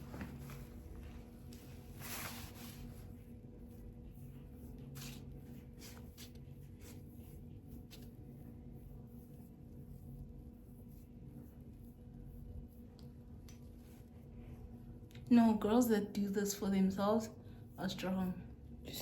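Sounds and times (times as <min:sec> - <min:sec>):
rustling and scraping handling: 0:00.0 - 0:14.7
electrical hum: 0:00.0 - 0:19.0.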